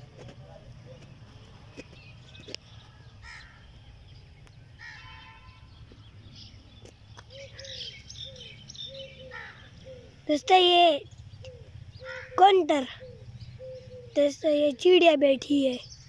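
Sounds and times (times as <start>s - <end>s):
high bird chirps: 0.8s - 16.0s
bird harsh call: 2.8s - 3.7s, 4.7s - 6.5s, 7.2s - 14.6s.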